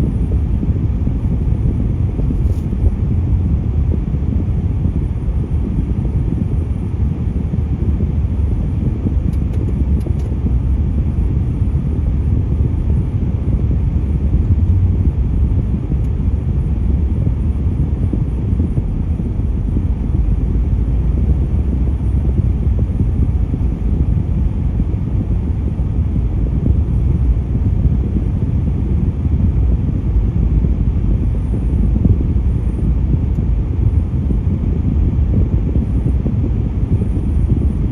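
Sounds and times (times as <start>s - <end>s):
low rumble of road traffic: 0.0s - 37.9s.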